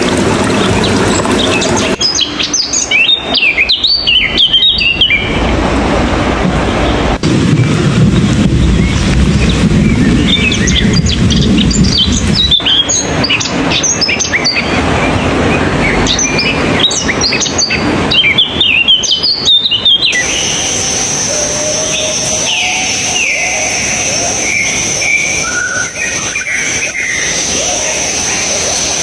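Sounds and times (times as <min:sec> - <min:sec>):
small songbirds chirping: 0:00.6 - 0:05.5, 0:07.6 - 0:29.0
low rumble: 0:03.9 - 0:12.6
sliding whistle: 0:20.1 - 0:28.9
steady high whine: 0:20.1 - 0:29.0.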